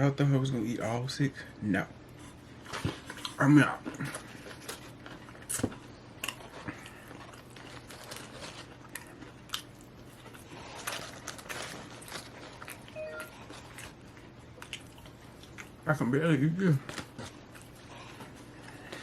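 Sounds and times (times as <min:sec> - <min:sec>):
man chewing food: 0:02.0 - 0:19.0.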